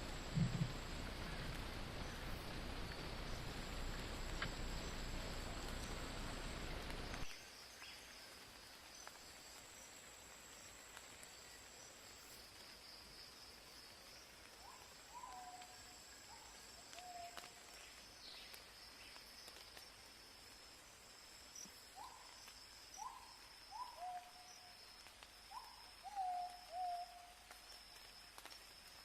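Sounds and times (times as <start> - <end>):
high insect drone: 0.0 - 14.2.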